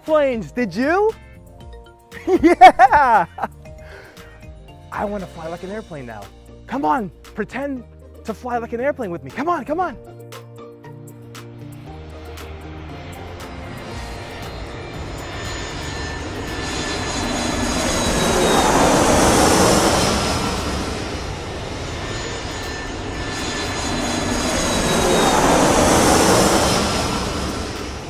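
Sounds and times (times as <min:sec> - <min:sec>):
airplane engine passing by: 0:10.8 - 0:28.0.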